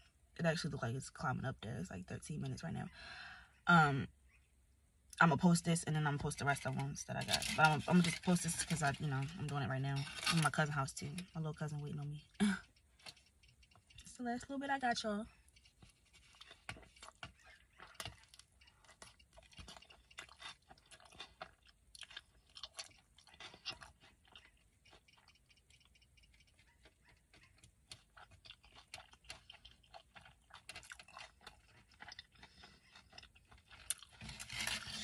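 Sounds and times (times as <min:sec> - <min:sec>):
wet chewing: 0:12.3 - 0:14.1, 0:15.3 - 0:35.0.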